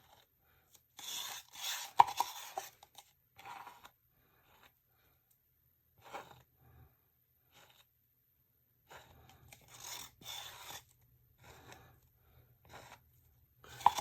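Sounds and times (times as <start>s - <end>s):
small objects scraping and rustling: 1.0s - 3.9s, 8.9s - 11.8s, 13.7s - 14.0s.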